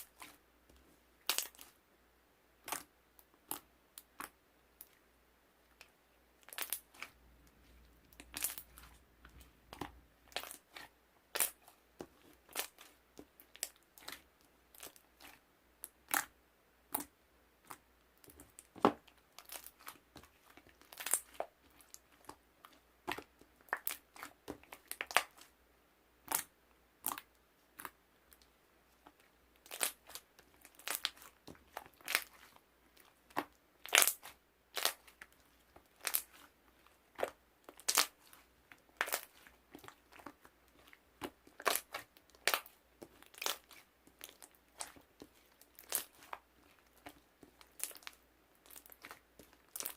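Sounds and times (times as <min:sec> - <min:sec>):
crackling and crunching: 0:17.7 - 0:25.5, 0:29.1 - 0:49.9.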